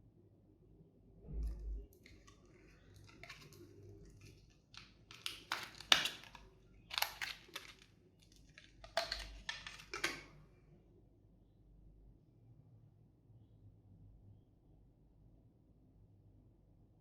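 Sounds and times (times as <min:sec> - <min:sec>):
packaging rustling and crinkling: 0:02.0 - 0:10.3.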